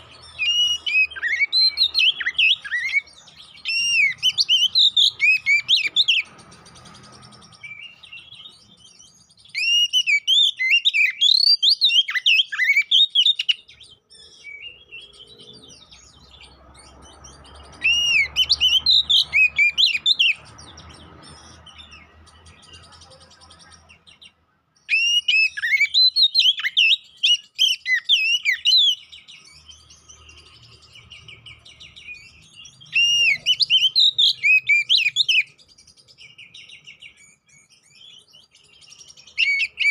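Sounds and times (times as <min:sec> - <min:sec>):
bird singing whistled phrases: 0:00.0 - 0:16.5, 0:17.2 - 0:39.9.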